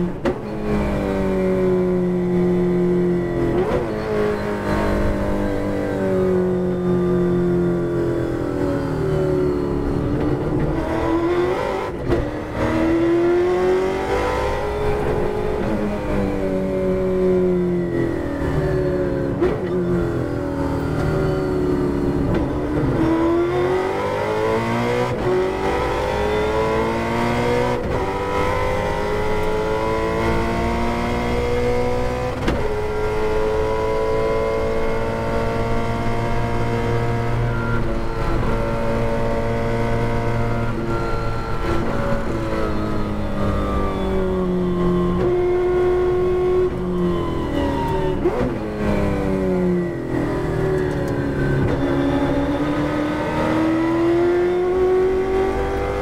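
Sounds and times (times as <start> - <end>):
race car engine revving: 9.8 - 20.1, 21.0 - 56.0.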